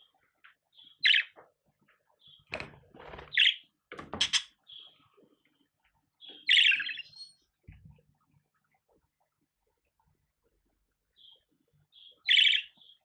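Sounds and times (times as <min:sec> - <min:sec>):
budgerigar chirping: 0:06.3 - 0:07.4, 0:12.0 - 0:13.0.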